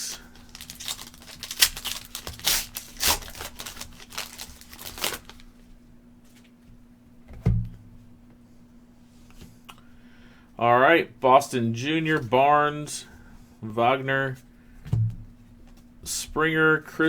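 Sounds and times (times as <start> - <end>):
cards being handled: 0.0 - 5.5
foil wrapper tearing and crinkling: 0.0 - 5.6
dull thump: 7.3 - 7.9, 14.8 - 15.4.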